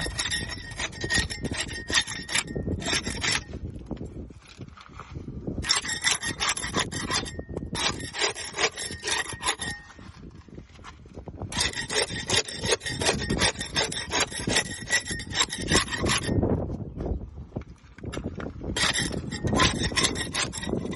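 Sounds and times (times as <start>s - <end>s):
rasping scraping of barnacles: 0.0s - 3.8s, 4.4s - 10.9s, 11.5s - 16.4s, 18.1s - 20.9s.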